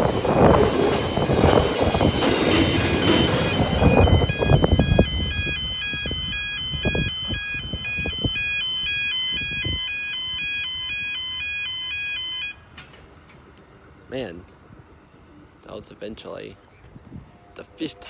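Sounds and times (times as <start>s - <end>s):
two-tone crossing alarm: 0.2s - 13.0s.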